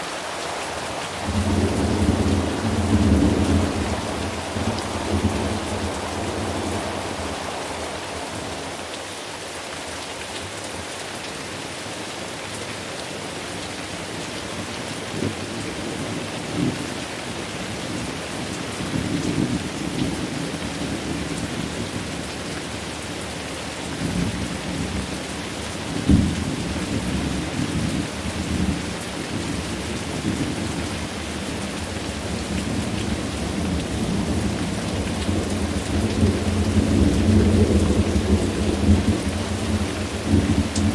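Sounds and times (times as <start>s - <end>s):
steady rain: 0.0s - 40.9s
rolling thunder: 1.2s - 8.7s, 26.0s - 31.4s, 32.1s - 40.9s
sharp thunder cracks: 26.1s - 26.8s.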